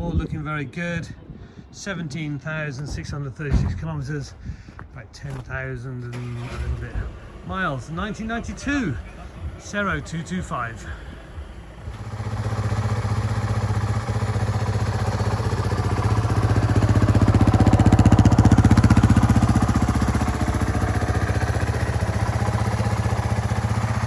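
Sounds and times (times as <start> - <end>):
motorcycle engine idling: 6.4 - 24.0.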